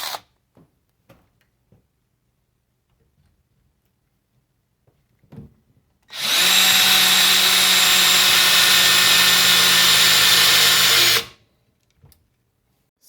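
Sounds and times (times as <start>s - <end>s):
cordless hammer drill running: 0.0s - 0.2s, 6.1s - 11.4s.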